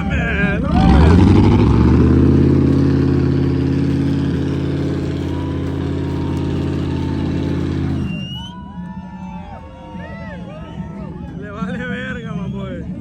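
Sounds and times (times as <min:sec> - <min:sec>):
truck engine running: 0:00.0 - 0:09.1.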